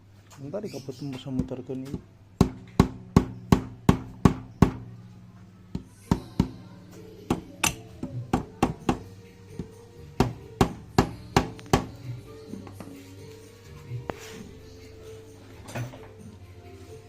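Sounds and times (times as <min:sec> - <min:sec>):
background music low tones: 0:00.0 - 0:17.0
sharp knocks: 0:01.3 - 0:04.9.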